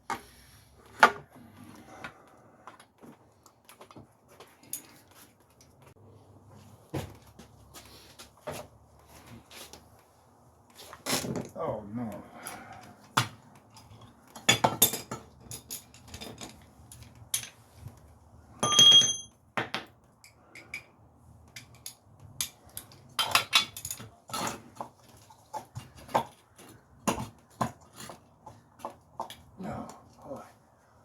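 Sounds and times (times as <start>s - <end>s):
metal tools clinking: 13.8s - 17.6s, 18.6s - 19.4s, 21.5s - 24.1s
ringing metallic clang: 18.6s - 19.3s.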